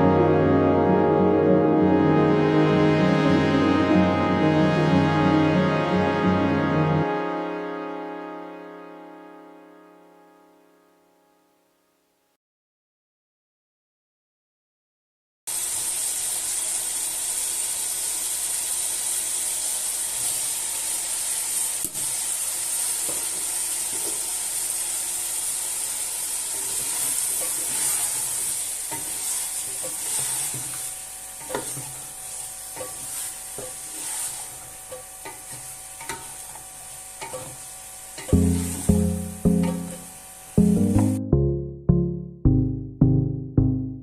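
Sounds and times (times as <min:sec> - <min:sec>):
curry sizzling in hot oil: 0:15.5 - 0:40.6
spoon stirring and knocking pan: 0:31.4 - 0:32.0, 0:34.9 - 0:36.6.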